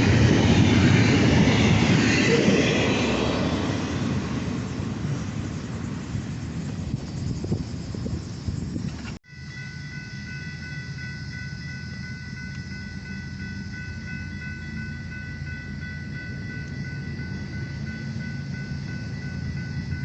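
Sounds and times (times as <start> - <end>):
train rumbling on rails: 0.0 - 20.0
steady high-pitched tones: 9.2 - 20.0.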